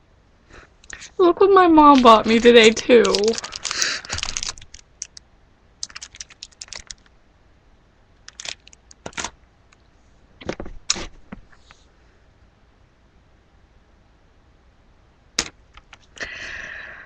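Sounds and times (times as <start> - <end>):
packaging clicks and rustles: 1.9 - 5.2, 5.8 - 7.1, 8.2 - 9.8.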